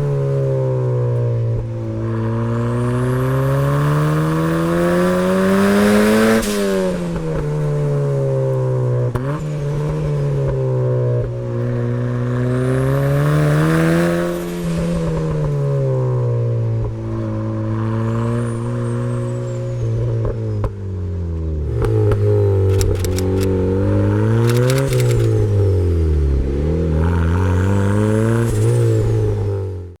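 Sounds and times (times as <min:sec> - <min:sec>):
engine crackles: 0:21.6 - 0:28.8
car engine revving: 0:21.6 - 0:29.8.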